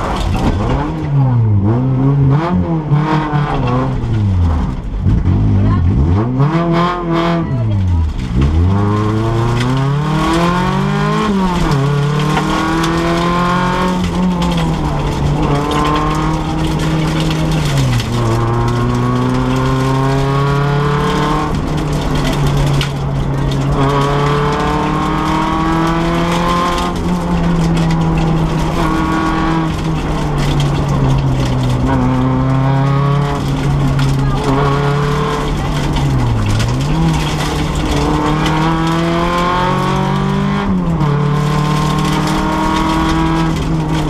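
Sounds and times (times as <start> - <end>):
car engine accelerating: 0.0 - 44.0.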